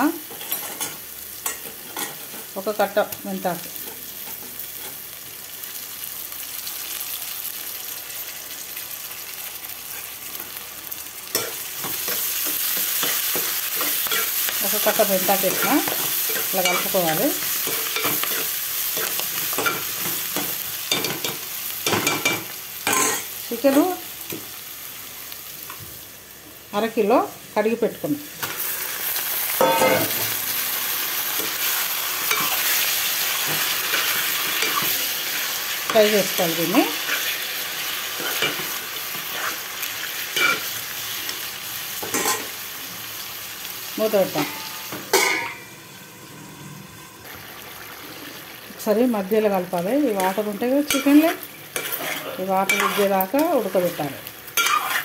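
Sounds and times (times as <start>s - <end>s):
vegetables sizzling in hot oil: 0.0s - 55.0s
metal spoon stirring in pot: 50.2s - 53.4s, 54.6s - 55.0s.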